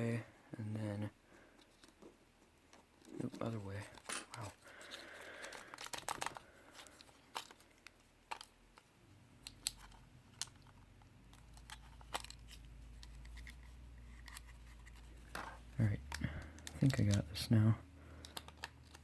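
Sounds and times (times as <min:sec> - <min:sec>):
low steady hum: 0:00.0 - 0:19.0
clicks and rustles of plastic remote: 0:05.4 - 0:07.6, 0:15.3 - 0:17.4, 0:18.2 - 0:19.0.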